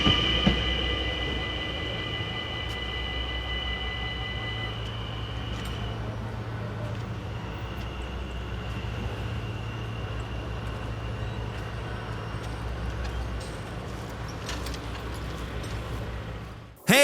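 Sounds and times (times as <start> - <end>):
high wheel squeal: 0.0 - 13.4
train rumbling past: 0.0 - 14.4.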